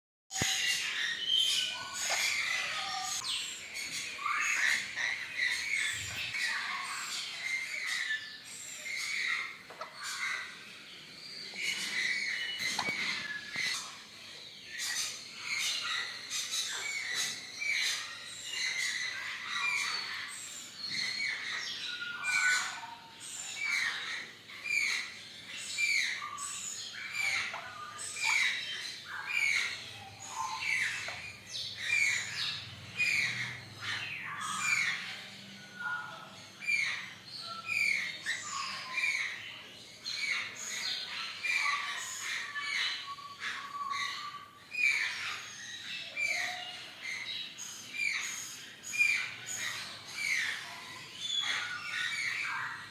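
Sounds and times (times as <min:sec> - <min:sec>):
parrot squawking and chirping: 0:00.3 - 0:52.9.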